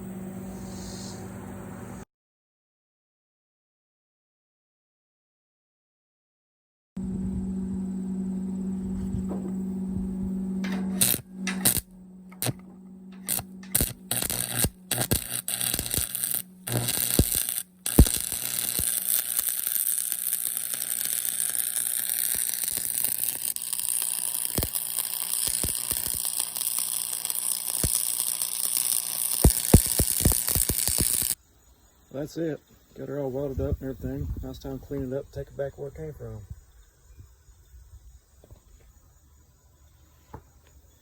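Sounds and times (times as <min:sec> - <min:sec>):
arc welder humming: 0:07.0 - 0:31.4
welding arc crackling hiss: 0:10.6 - 0:31.4.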